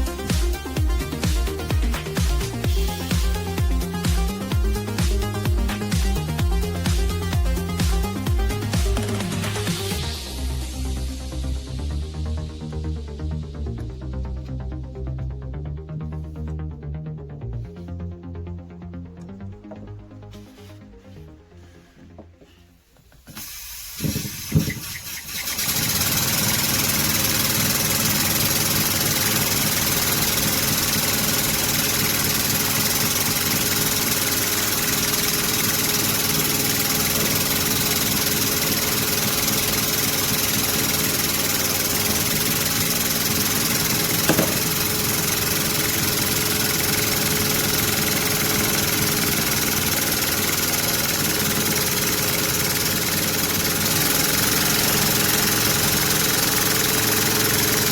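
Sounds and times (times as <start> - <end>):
miniature steam engine running: 23.3 - 57.9
knocks of steam engine: 43.8 - 48.0.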